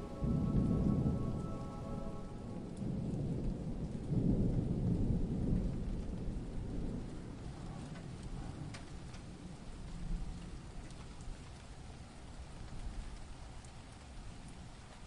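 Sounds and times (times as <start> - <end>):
held synth chord: 0.0 - 3.5
thunder rumbling: 0.0 - 10.8
steady rain: 0.0 - 15.0.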